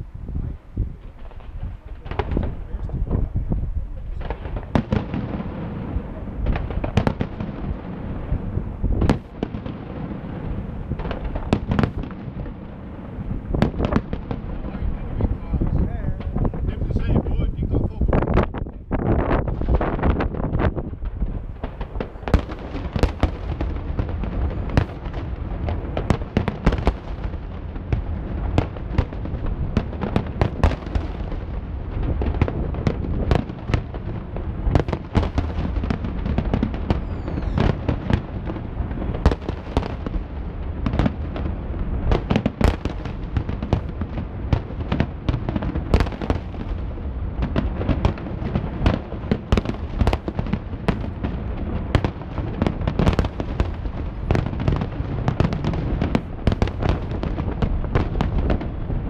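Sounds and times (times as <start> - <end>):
fireworks bursting with sharp bangs: 0.0 - 59.0
rising firework whistle: 24.3 - 25.2, 34.8 - 40.1.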